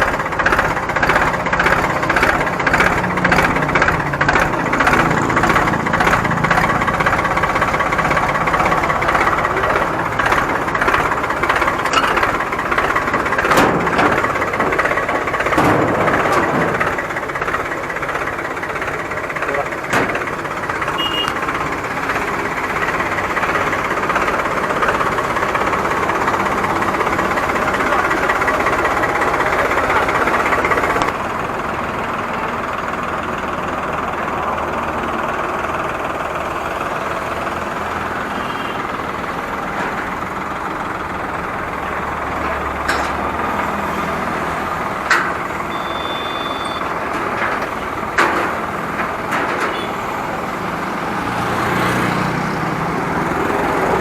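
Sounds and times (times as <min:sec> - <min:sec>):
tractor diesel engine running: 0:00.0 - 0:54.0
metallic knocks: 0:08.4 - 0:19.2, 0:42.3 - 0:44.3, 0:46.8 - 0:50.4.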